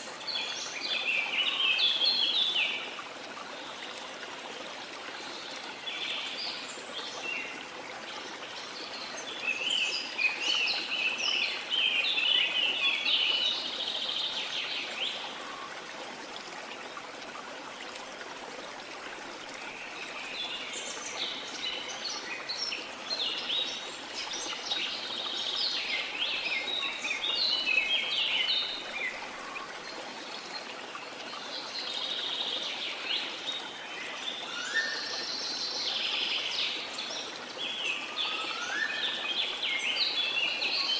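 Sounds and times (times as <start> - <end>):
songbirds chirping: 19.0 - 40.9.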